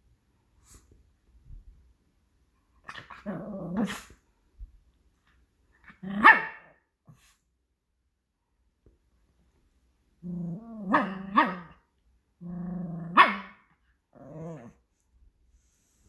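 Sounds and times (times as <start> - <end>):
dog growling: 3.0 - 4.1, 10.2 - 11.7, 12.4 - 13.2, 14.2 - 14.8
dog barking: 6.2 - 6.8, 10.9 - 11.8, 13.1 - 13.7.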